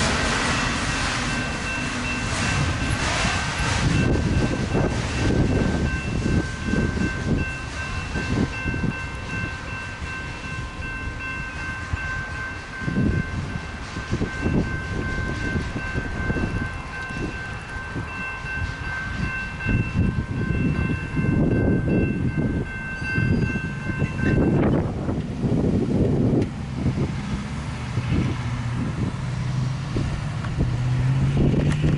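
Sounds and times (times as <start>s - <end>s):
freight train rolling past: 0.0s - 31.9s
wheel and rail clatter: 0.0s - 31.9s
high multi-tone ringing: 4.0s - 24.6s.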